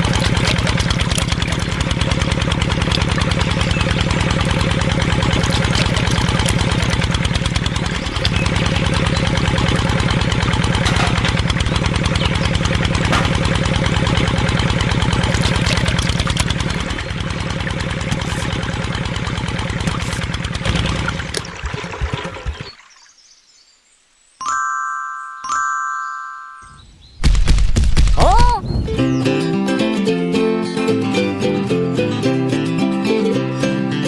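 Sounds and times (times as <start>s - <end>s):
small tractor engine putter: 0.0s - 22.7s.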